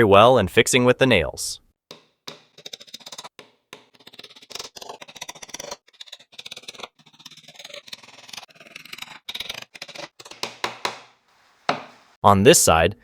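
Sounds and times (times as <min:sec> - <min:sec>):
hammer tapping nails into wood: 0:10.3 - 0:11.1.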